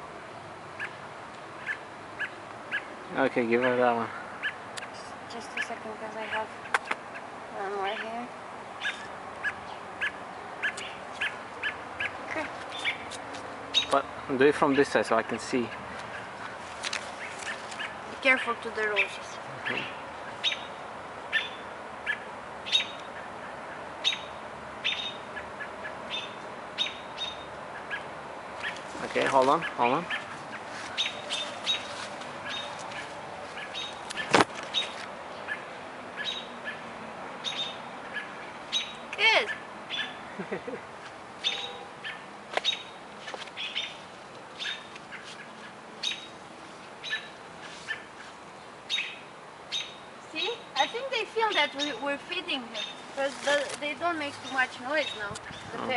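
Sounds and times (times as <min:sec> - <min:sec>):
small bird chirping: 0:00.8 - 0:01.0, 0:04.4 - 0:14.2, 0:17.1 - 0:28.9, 0:29.6 - 0:36.8, 0:37.4 - 0:40.2, 0:41.4 - 0:44.0, 0:44.6 - 0:46.4, 0:47.0 - 0:48.3, 0:48.9 - 0:55.9.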